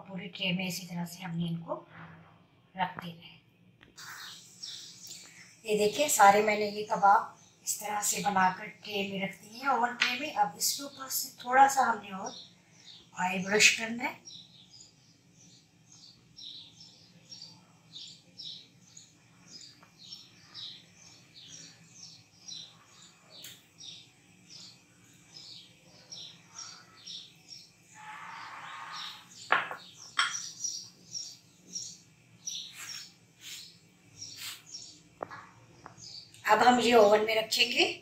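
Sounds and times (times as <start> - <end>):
small bird chirping: 4.0 - 5.9, 12.1 - 37.2
rustling scrape: 34.3 - 34.7.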